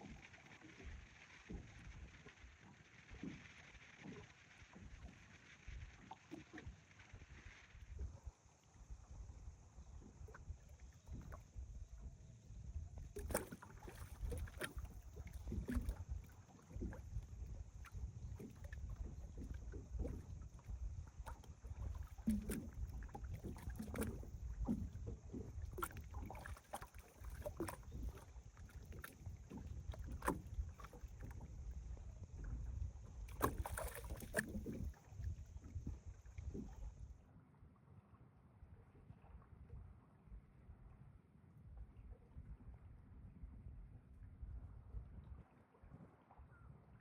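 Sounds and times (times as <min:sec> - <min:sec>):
waves lapping against shore: 0:13.1 - 0:31.8, 0:33.3 - 0:37.0.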